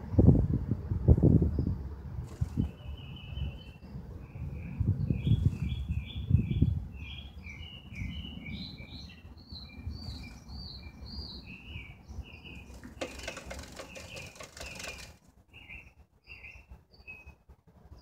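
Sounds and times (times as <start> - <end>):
small songbird chirping: 1.4 - 18.0
wings fluttering and tapping: 2.2 - 2.8, 12.6 - 15.6.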